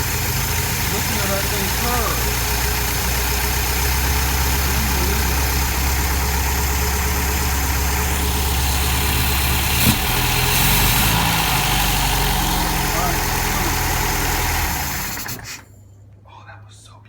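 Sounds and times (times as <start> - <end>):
car engine idling: 0.0 - 15.8.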